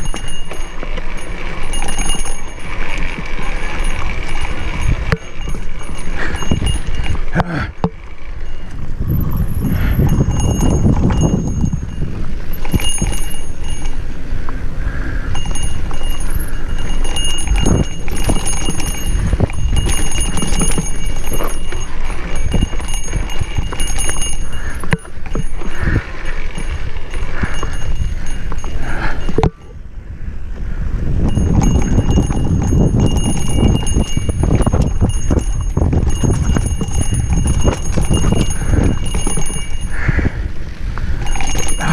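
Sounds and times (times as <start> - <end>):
mountain bike clattering: 0.0 - 29.9, 30.6 - 41.9
wind buffeting microphone: 0.0 - 41.9.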